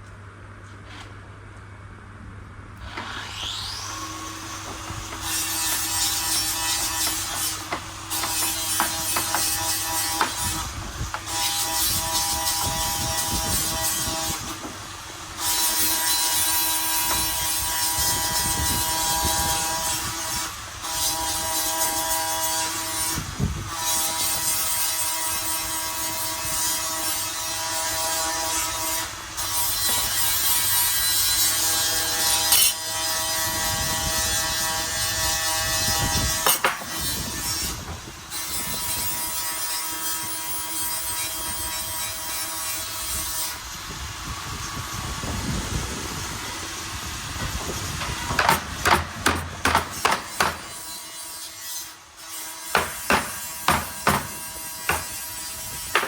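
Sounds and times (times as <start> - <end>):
power tool whining on wood: 2.8 - 22.8.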